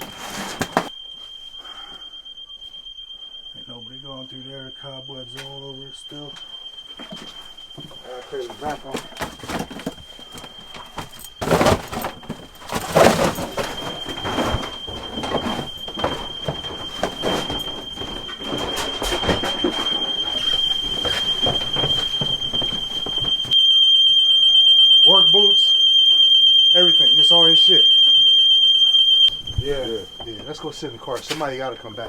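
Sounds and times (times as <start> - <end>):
high-pitched alarm tone: 0.0 - 32.0
rustling of people moving: 5.2 - 24.2, 28.8 - 32.0
knocks and bumps: 7.0 - 23.6.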